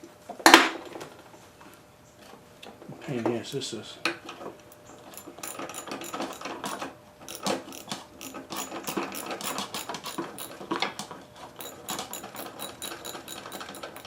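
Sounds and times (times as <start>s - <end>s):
hand tool clicking and rattling: 4.7s - 14.0s.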